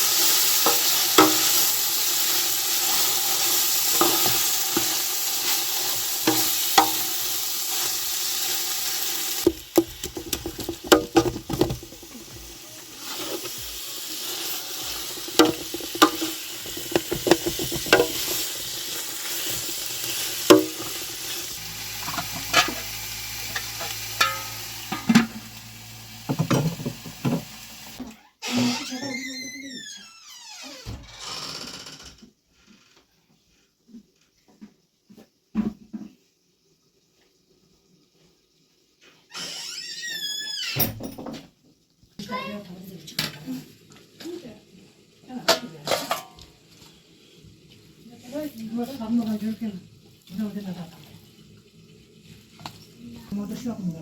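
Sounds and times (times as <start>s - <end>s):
food sizzling in a pan: 0.0s - 28.0s, 42.1s - 54.0s
utensil clicking against pan: 15.0s - 18.8s, 20.1s - 21.0s.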